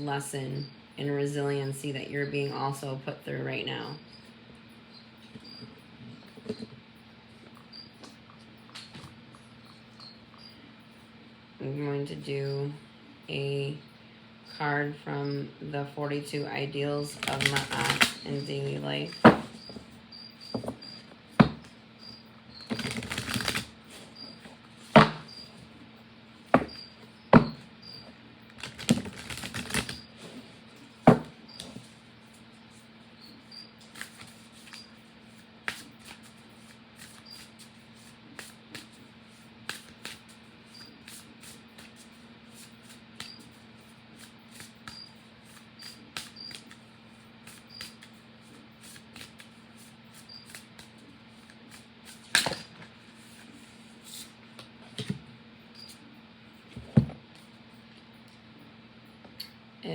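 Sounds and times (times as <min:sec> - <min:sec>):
cards being shuffled: 0:17.1 - 0:19.8, 0:22.7 - 0:25.3, 0:28.6 - 0:32.0, 0:33.8 - 0:43.6, 0:44.2 - 0:46.8, 0:47.4 - 0:54.3.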